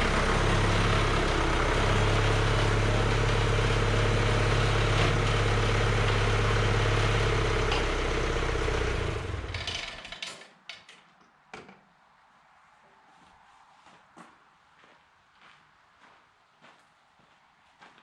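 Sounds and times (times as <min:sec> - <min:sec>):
tractor engine running: 0:00.0 - 0:10.2.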